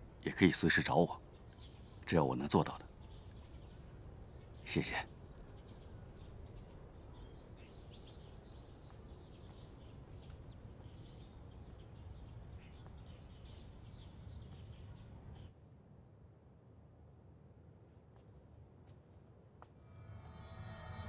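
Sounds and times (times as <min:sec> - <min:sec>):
small birds chirping: 0:00.0 - 0:15.6.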